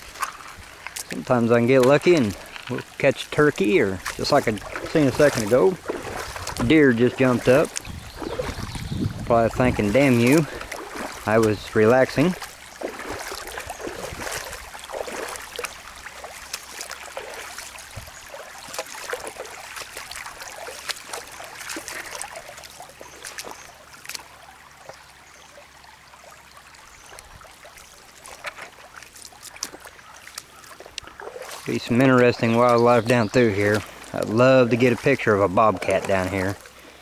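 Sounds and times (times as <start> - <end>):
footsteps on stones: 0.0 - 23.6
creek trickling: 0.0 - 37.0.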